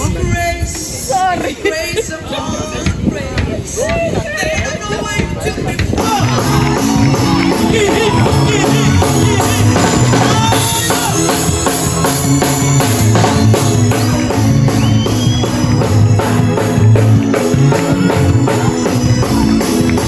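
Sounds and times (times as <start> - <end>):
live worship band: 4.6 - 20.0
drum kit beat: 5.8 - 20.0
person singing: 6.0 - 14.7.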